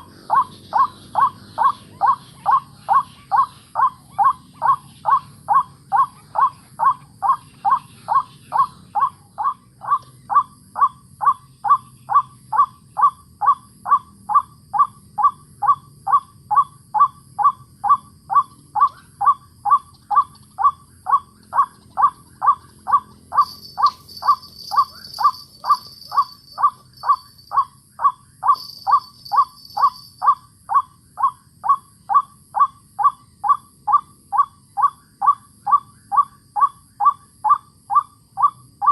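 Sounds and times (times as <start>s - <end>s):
higher-pitched bird call: 15.6s - 38.9s.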